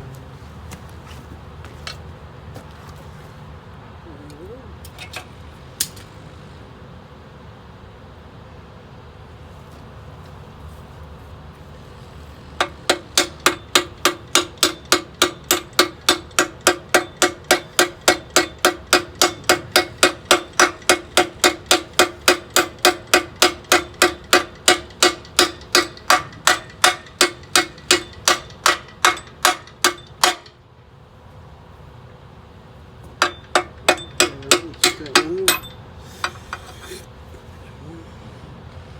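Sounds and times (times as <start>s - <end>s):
hammer ringing on steel: 12.6s - 30.6s, 33.2s - 36.8s.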